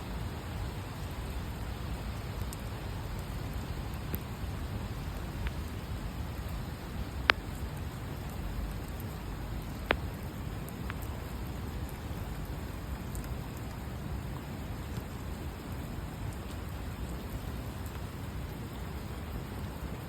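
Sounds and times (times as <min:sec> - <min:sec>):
steady rain falling: 0:00.0 - 0:20.0
sharp ticks close by: 0:02.3 - 0:13.8.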